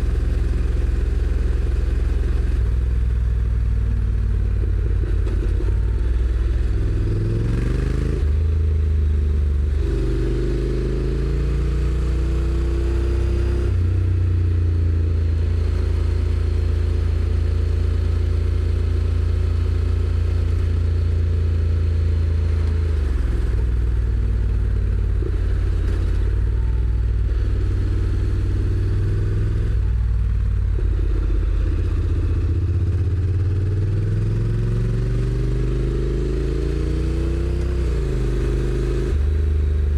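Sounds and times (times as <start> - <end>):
motorcycle engine revving: 0.0 - 8.5, 22.9 - 39.9.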